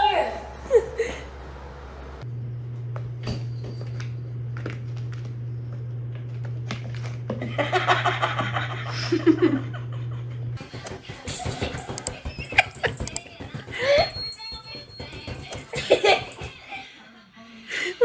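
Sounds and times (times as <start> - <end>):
person laughing: 0.6 - 1.4, 7.4 - 14.2, 15.6 - 17.1.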